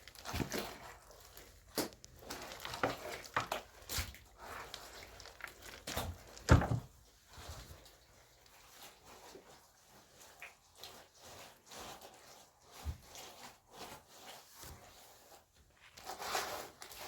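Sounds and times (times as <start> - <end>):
rustling: 0.0 - 17.0
knocks thuds and scuffs: 6.0 - 6.9.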